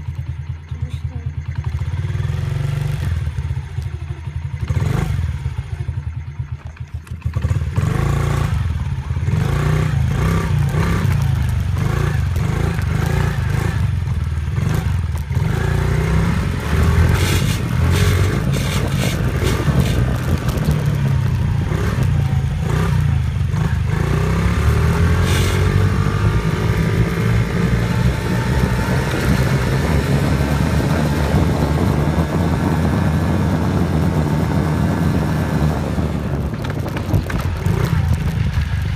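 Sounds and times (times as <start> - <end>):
dirt bike engine revving: 4.5 - 5.6, 7.2 - 36.2.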